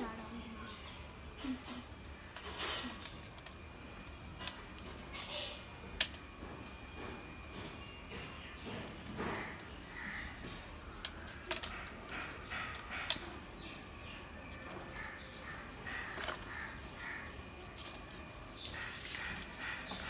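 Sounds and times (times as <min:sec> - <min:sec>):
bird harsh calls: 0:08.1 - 0:17.6, 0:18.5 - 0:20.0.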